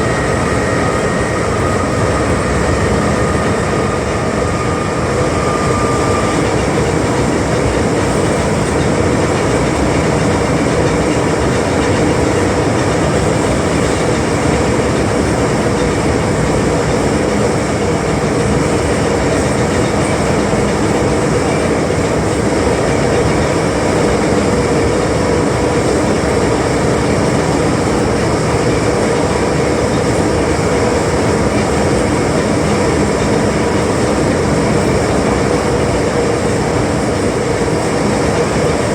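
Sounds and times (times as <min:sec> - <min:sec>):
steady hum: 0:00.0 - 0:38.9
train wheels rumbling on rail: 0:00.0 - 0:38.9.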